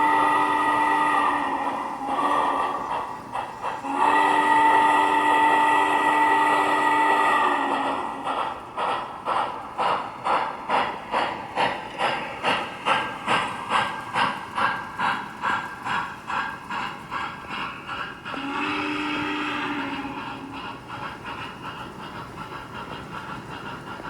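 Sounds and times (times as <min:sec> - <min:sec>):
steam whistle: 0:00.0 - 0:03.0, 0:03.7 - 0:08.4, 0:18.3 - 0:20.8
steam locomotive chuffing: 0:00.0 - 0:24.0.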